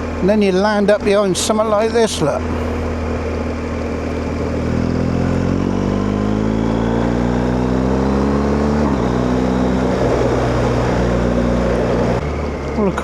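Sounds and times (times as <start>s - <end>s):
motorcycle engine accelerating: 2.4s - 13.0s.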